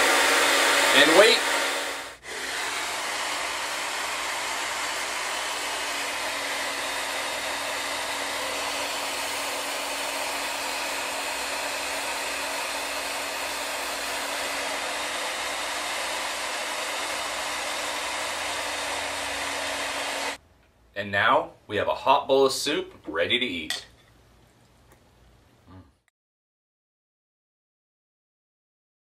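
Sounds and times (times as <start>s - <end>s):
hair dryer blowing air: 0.0s - 20.4s.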